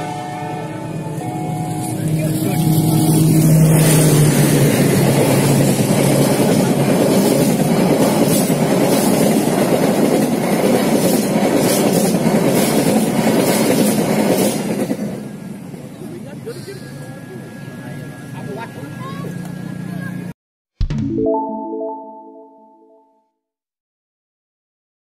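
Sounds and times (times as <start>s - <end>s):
train wheels clicking over rail joints: 4.8s - 15.1s.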